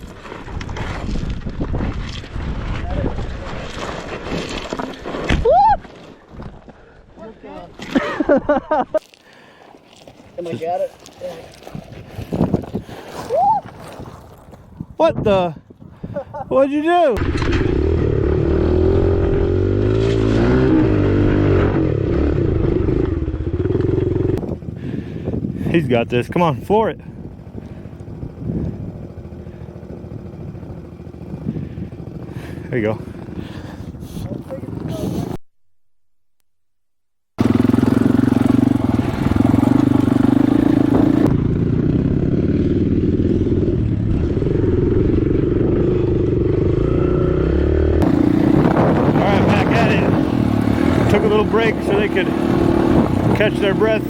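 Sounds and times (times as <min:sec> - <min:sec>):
wind buffeting microphone: 0:11.4 - 0:16.6, 0:24.3 - 0:35.4, 0:48.0 - 0:54.0
dirt bike engine running: 0:17.1 - 0:35.2, 0:37.4 - 0:54.0.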